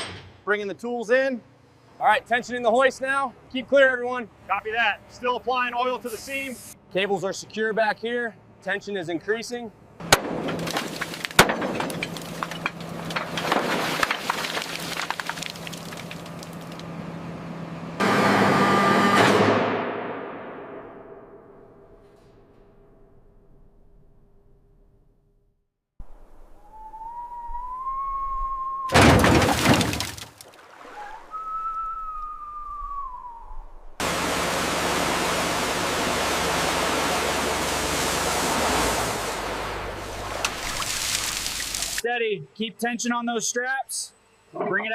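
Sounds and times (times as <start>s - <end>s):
loud grinding crash: 10.0s - 16.9s, 28.9s - 30.4s
thin whistling tone: 26.5s - 29.0s, 30.9s - 34.0s.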